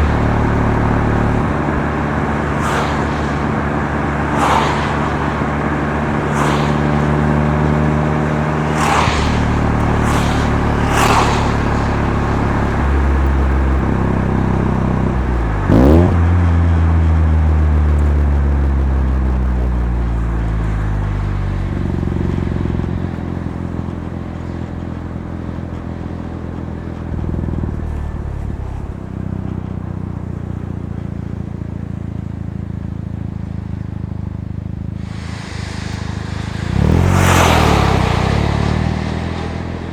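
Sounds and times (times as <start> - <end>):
rotary engine exhaust revving: 0.0 - 39.9.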